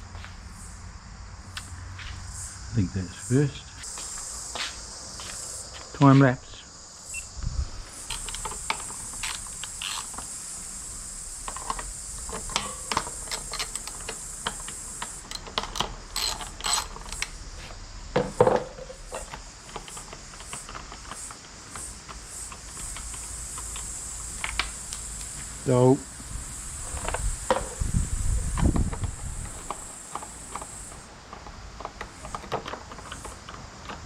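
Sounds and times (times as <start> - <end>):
high insect chirr: 0.0 - 34.0
hand tools clicking and clinking: 8.0 - 10.4, 11.4 - 17.4, 28.5 - 34.0
ratchet clicking: 8.0 - 10.4, 11.4 - 17.4.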